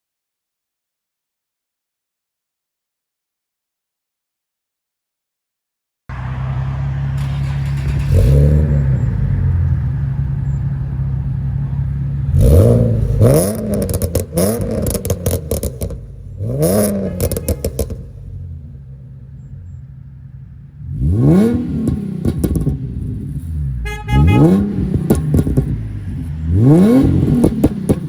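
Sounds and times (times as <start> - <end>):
car engine idling and revving: 6.1 - 28.0
exhaust crackles: 6.1 - 28.0.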